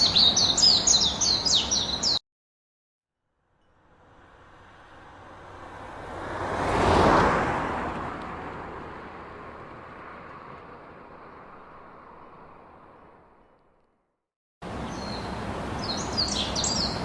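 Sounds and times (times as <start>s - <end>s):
car passing by: 3.6s - 13.5s, 14.6s - 17.0s.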